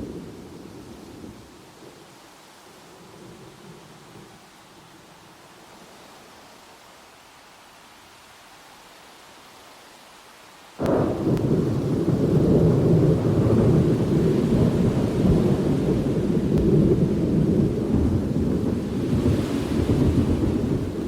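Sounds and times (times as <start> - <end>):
thunder crack and rumble: 10.8 - 21.0.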